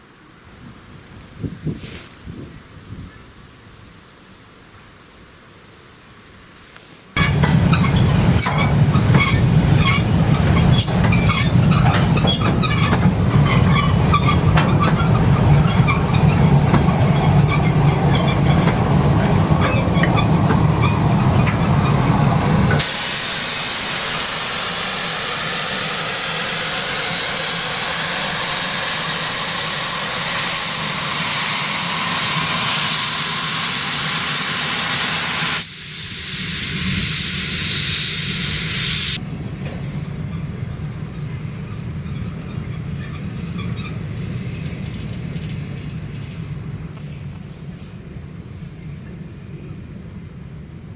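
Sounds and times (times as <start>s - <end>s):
steam hissing: 6.8s - 39.2s
metallic clanks and squeaks: 7.2s - 22.9s, 41.7s - 44.0s
steam train rumbling on rails: 7.2s - 50.9s.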